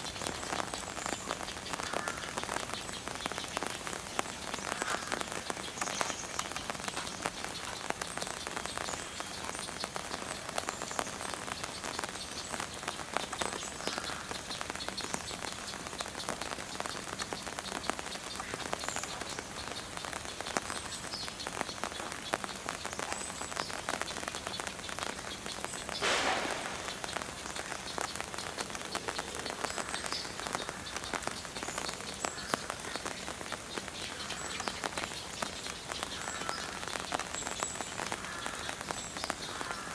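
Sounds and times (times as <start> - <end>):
steady rain patter: 0.0 - 39.9
brief rush of noise: 26.0 - 28.2.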